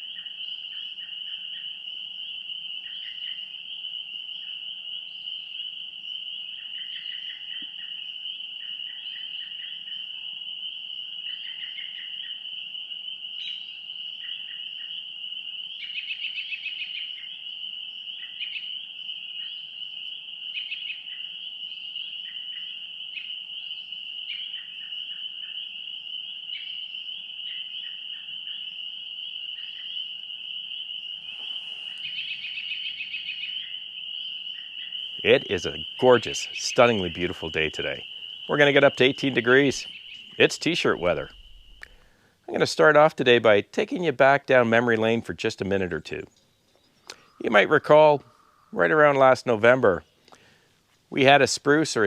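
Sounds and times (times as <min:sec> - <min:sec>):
bird chirps and calls: 0:31.2 - 0:42.2, 0:45.6 - 0:50.5.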